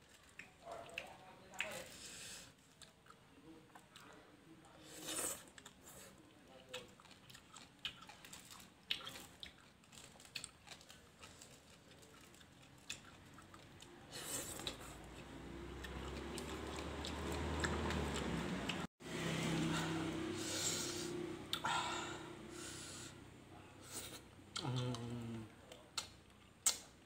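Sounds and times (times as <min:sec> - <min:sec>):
person chewing and crunching food: 0:00.0 - 0:04.2, 0:04.8 - 0:18.9, 0:23.9 - 0:27.0.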